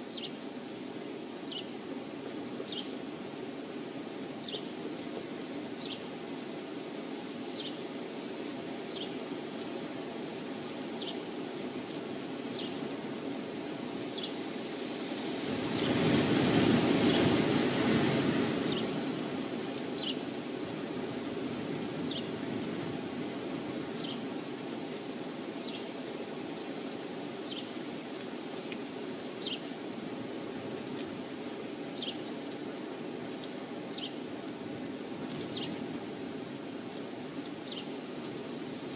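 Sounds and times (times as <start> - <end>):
wind rushing: 14.4 - 24.1.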